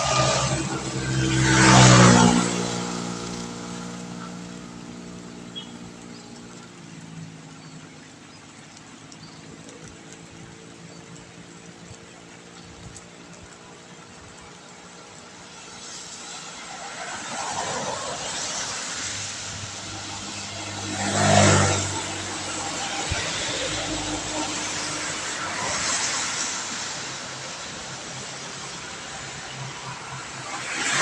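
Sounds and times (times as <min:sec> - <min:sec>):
tyres hissing on wet road: 0:00.0 - 0:31.0.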